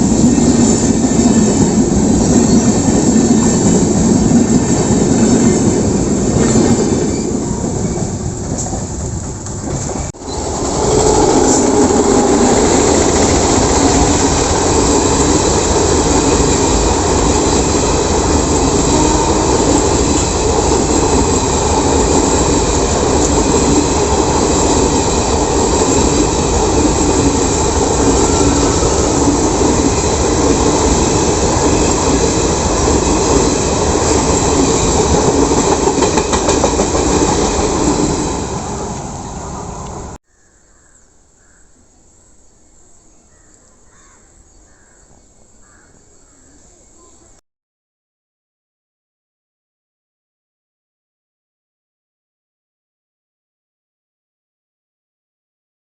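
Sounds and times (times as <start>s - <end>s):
train rolling past on rails: 0.0s - 40.2s.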